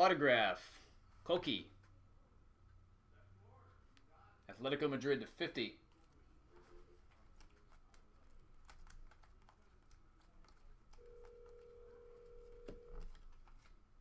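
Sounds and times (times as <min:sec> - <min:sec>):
trading cards clicking and rustling: 0:05.8 - 0:11.7, 0:12.3 - 0:14.0.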